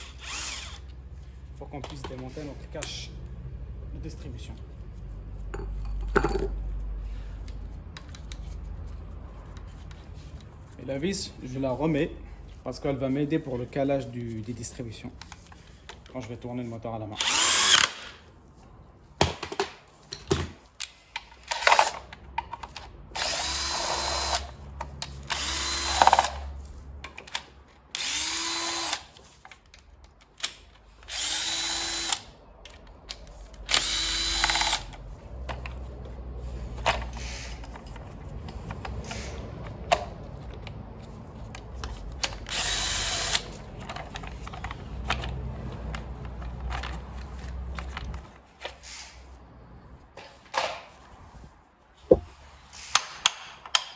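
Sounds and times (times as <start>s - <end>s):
cordless drill whine: 0.0s - 0.9s, 17.2s - 18.1s, 23.2s - 24.5s, 25.4s - 26.3s, 28.0s - 29.0s, 31.1s - 32.3s, 33.7s - 34.9s, 42.5s - 43.5s
tool clicks and knocks: 52.1s - 52.3s, 53.0s - 53.9s.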